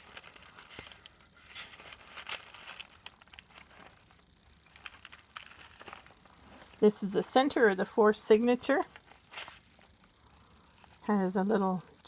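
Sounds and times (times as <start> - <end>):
paper pages rustling: 0.0 - 7.3, 8.8 - 10.0.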